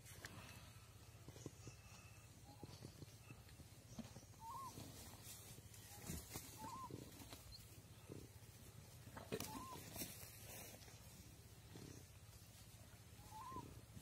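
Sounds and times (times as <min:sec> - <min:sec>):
bird whistled call: 0:04.2 - 0:04.8, 0:06.6 - 0:06.9, 0:09.4 - 0:09.8, 0:13.2 - 0:13.7.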